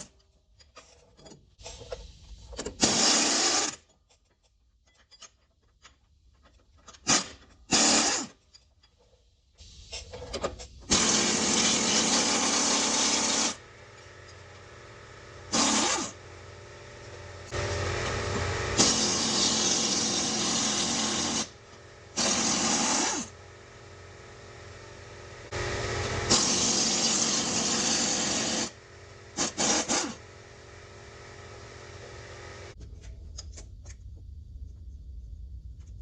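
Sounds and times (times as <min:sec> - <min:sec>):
power tool running in bursts: 0:10.8 - 0:32.8.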